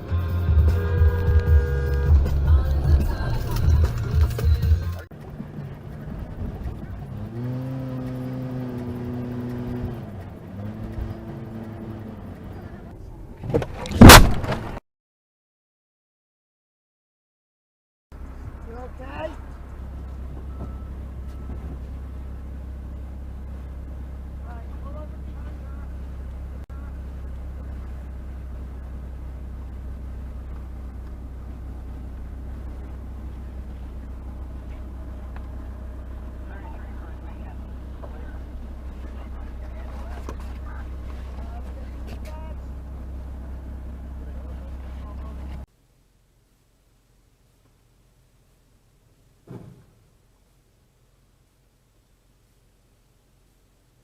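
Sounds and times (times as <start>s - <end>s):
car engine revving: 0.0s - 13.4s, 22.2s - 45.7s.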